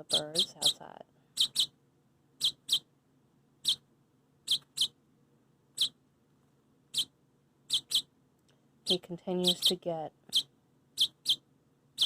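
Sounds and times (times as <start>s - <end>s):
baby bird chirping: 0.0s - 1.8s, 2.4s - 2.9s, 3.6s - 5.0s, 5.7s - 6.0s, 6.9s - 8.1s, 8.8s - 12.0s.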